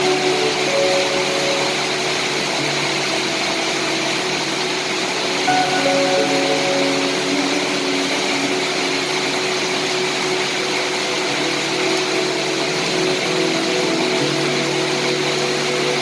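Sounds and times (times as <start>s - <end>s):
steady rain hissing: 0.0s - 16.0s.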